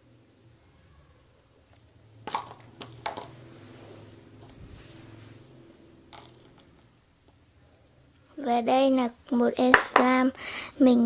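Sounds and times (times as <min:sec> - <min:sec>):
soft crackling hiss: 0:02.6 - 0:11.0.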